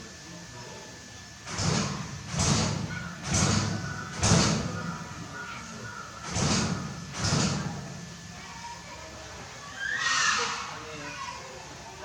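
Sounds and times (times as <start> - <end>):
heavy bangs on metal door: 1.4 - 5.2, 6.2 - 8.1
door rattling and ringing: 1.5 - 4.9, 6.2 - 8.0.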